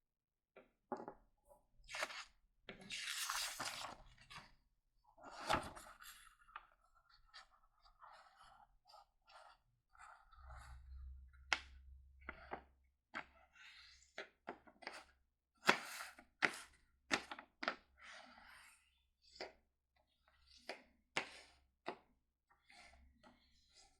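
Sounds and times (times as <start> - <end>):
paper rustling and crinkling: 3.0 - 4.5.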